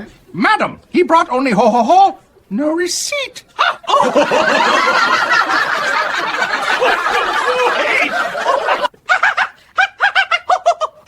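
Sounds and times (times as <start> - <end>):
group of people laughing: 3.6 - 11.0
person laughing rhythmically: 3.6 - 11.0.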